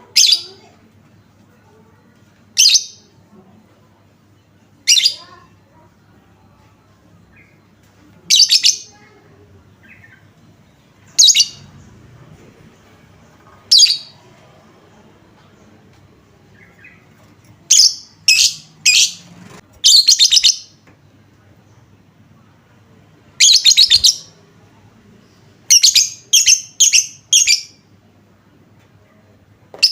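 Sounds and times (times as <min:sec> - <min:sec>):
lovebird shrill chattering: 0:23.4 - 0:24.3.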